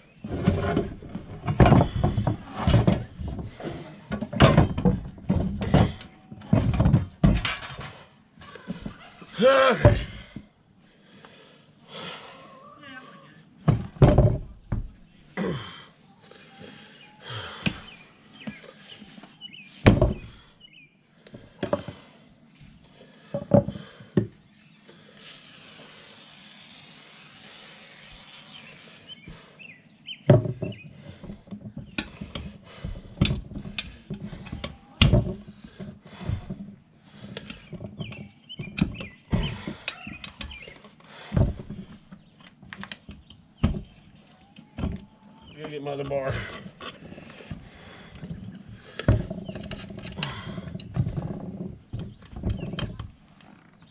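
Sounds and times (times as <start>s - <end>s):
steady hiss: 25.1s - 29.1s.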